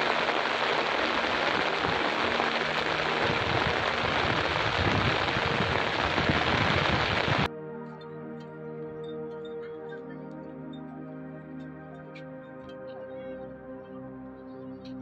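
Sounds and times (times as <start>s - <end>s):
heavy rain hissing: 0.0s - 7.5s.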